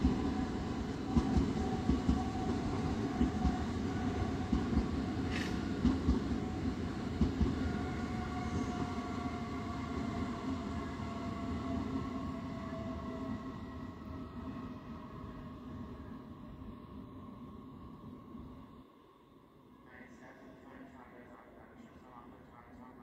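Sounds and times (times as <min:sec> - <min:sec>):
electric train whine: 0:00.0 - 0:23.0.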